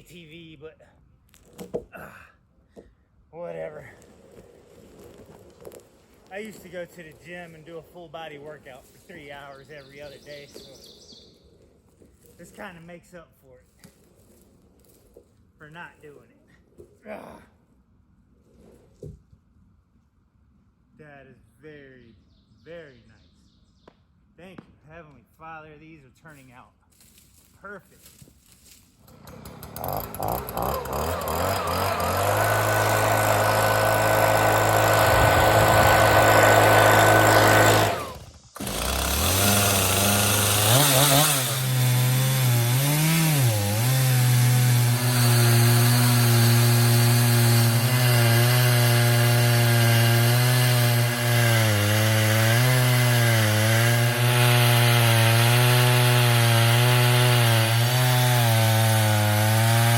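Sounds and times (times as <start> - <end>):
chainsaw cutting through log: 5.0 - 10.9, 29.0 - 59.9.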